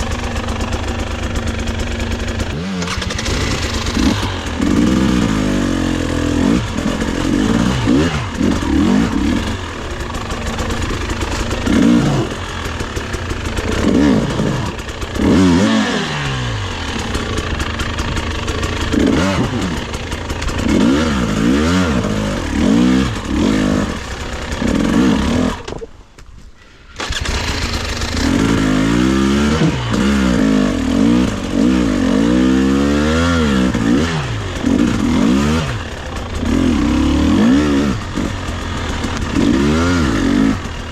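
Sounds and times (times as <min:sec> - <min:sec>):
dirt bike engine revving: 0:00.0 - 0:25.8, 0:27.0 - 0:40.9.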